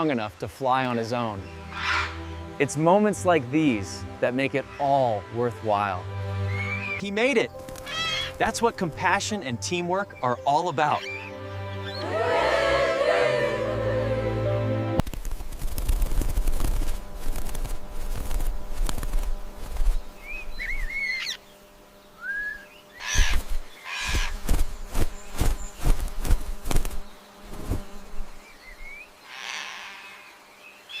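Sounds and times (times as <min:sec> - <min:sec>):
bird chirping rising calls: 0:00.9 - 0:02.7, 0:06.4 - 0:08.5, 0:10.0 - 0:13.3, 0:19.9 - 0:31.0
wings fluttering and rustling: 0:07.5 - 0:08.5, 0:15.0 - 0:29.8.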